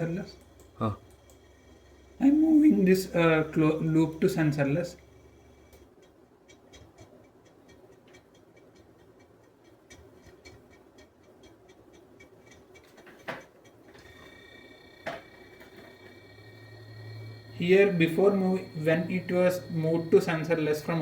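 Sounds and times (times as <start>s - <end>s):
refrigerator compressor humming: 0.0s - 21.0s
high whine: 14.0s - 21.0s.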